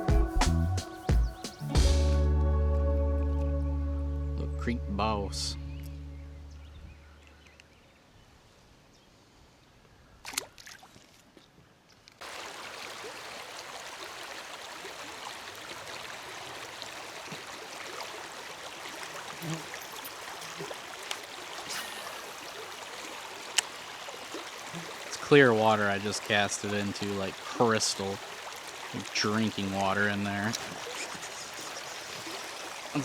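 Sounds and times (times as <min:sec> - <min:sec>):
flowing creek water: 0:12.2 - 0:33.0.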